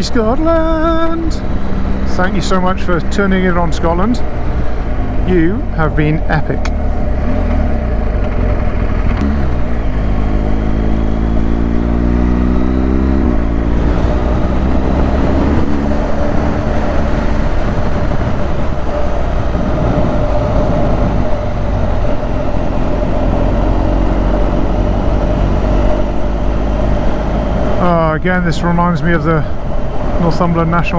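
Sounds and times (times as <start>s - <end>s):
motorcycle engine accelerating: 0.8s - 28.8s
wind rush on microphone: 6.8s - 30.9s.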